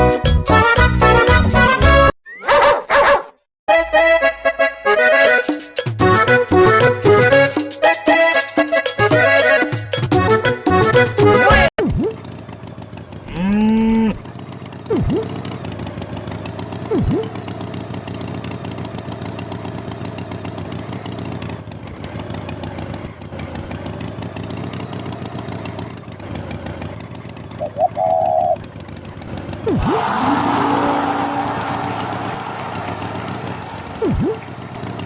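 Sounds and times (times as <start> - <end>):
engine running steadily: 10.7 - 35.0
swooping sound effects: 11.8 - 12.2, 14.9 - 15.4, 16.9 - 17.3, 29.6 - 35.0
cartoon cow mooing: 13.2 - 14.2, 29.7 - 31.6.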